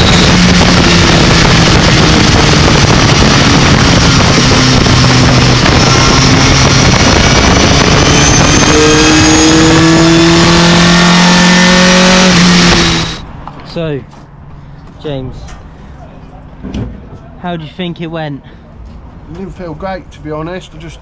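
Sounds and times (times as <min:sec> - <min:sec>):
truck engine accelerating: 0:00.0 - 0:13.5
road noise: 0:00.0 - 0:21.0.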